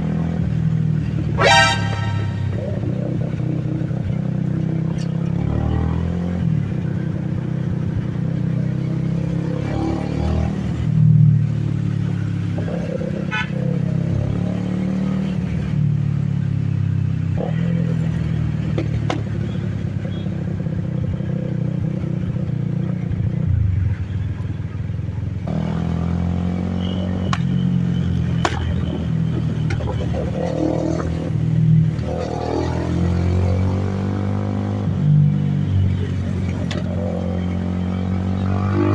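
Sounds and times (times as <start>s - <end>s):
sharp engine pops: 28.4s - 28.9s.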